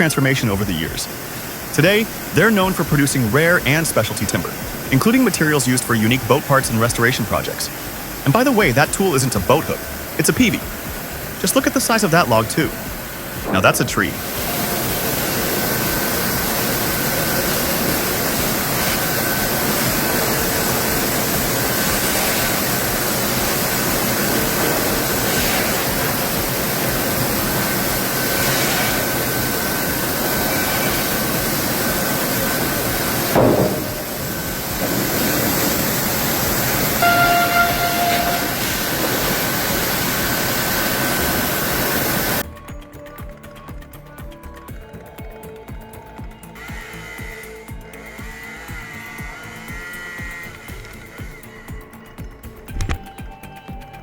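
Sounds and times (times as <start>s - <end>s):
faint high whine: 0.0s - 42.4s
sawmill machinery running: 0.0s - 42.4s
sharp knock: 33.4s - 34.4s
brief pitched tone: 37.0s - 39.0s.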